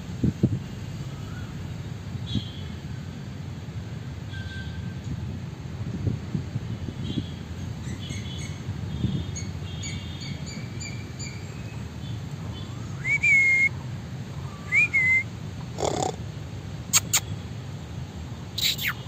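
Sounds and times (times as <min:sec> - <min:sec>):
rising whistled bird calls: 0:12.6 - 0:13.7, 0:14.4 - 0:15.3, 0:18.6 - 0:19.0
small birds chirping: 0:15.8 - 0:16.2, 0:18.6 - 0:19.0.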